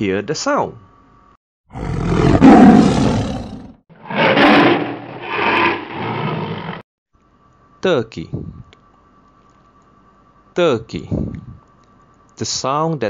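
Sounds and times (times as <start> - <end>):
tiger roaring: 1.7 - 6.8.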